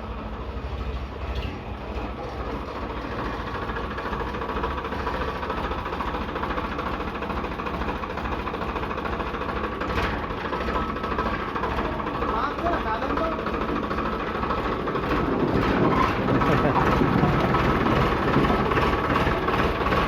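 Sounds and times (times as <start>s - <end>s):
heavy diesel engine chugging: 0.0s - 20.0s.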